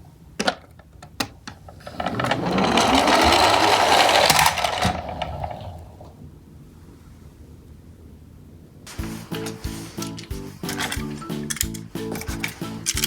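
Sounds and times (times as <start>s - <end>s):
toy truck wheels whirring: 1.8s - 6.1s, 8.9s - 13.0s
sharp plastic clicks: 9.4s - 13.0s.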